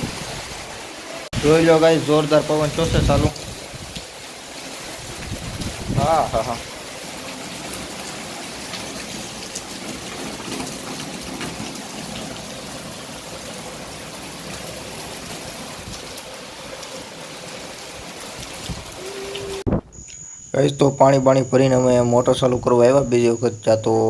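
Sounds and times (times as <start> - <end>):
rain in strong wind: 0.0 - 19.8
faint ticks of raindrops: 3.3 - 4.3, 7.1 - 20.2.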